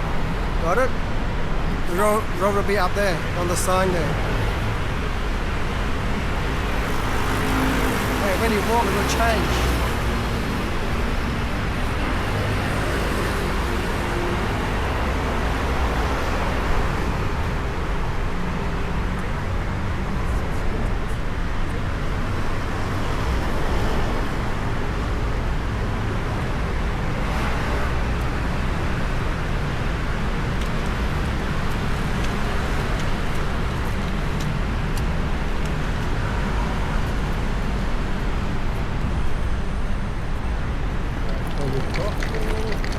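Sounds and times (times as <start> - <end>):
passing cars rumbling: 1.4 - 20.3.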